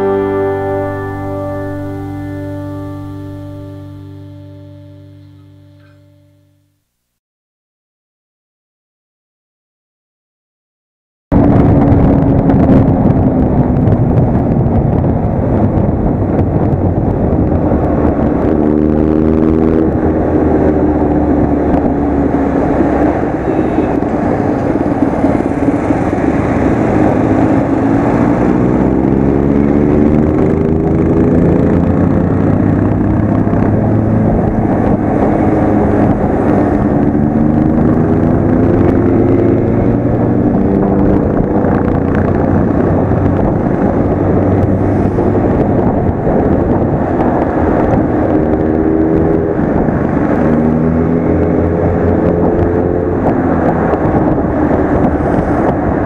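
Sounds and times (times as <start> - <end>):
wind rushing: 11.3 - 56.0
motorcycle engine revving: 11.5 - 56.0.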